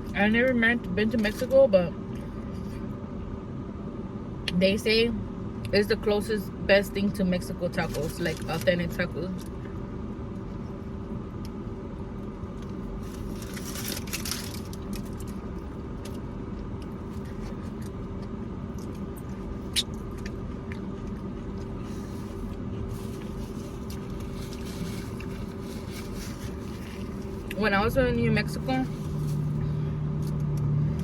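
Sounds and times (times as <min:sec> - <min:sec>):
low engine hum: 0:00.0 - 0:31.0
eating noises: 0:16.8 - 0:27.6.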